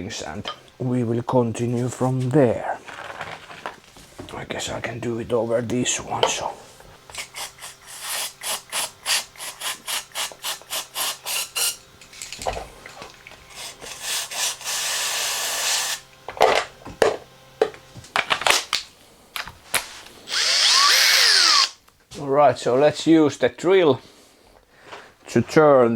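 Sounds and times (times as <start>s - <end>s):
power drill starting: 5.6s - 18.8s, 19.4s - 21.8s
aerosol spray hissing: 6.6s - 12.1s, 13.4s - 16.1s.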